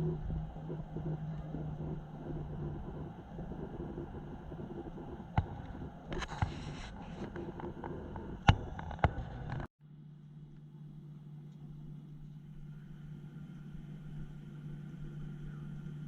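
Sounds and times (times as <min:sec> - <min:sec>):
low mechanical hum: 0:00.0 - 0:16.0
quieter steady hum: 0:00.0 - 0:16.0
sharp knocks and clicks: 0:00.7 - 0:09.7.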